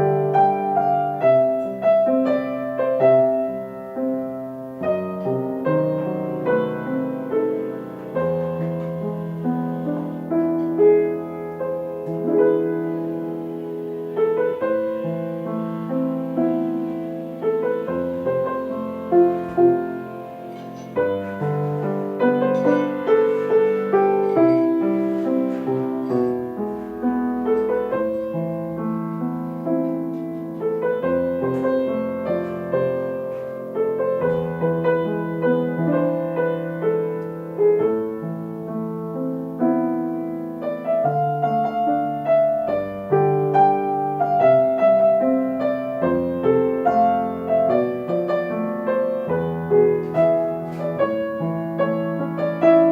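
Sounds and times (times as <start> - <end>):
slow gentle piano piece: 0.0 - 52.9.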